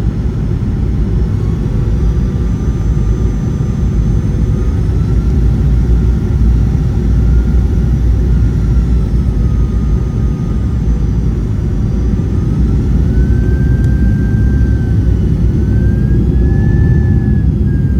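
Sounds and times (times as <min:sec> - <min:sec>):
airliner cabin rumble: 0:00.0 - 0:17.9
faint engine whine: 0:00.0 - 0:17.9.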